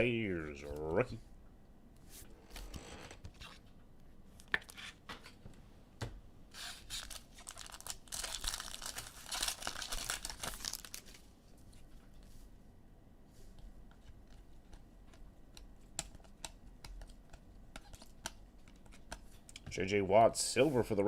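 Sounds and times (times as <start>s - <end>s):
wrapper tearing and crinkling: 6.6s - 11.2s.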